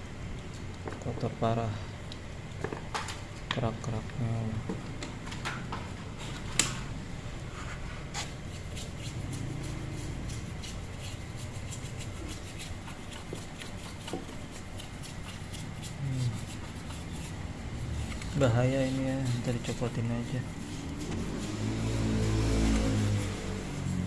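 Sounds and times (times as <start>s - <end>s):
scrubbing metal engine block: 7.8s - 24.0s.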